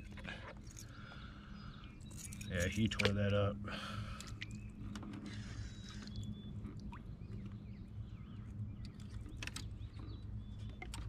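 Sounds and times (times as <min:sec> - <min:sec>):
faint bird chirps: 0:04.1 - 0:11.0.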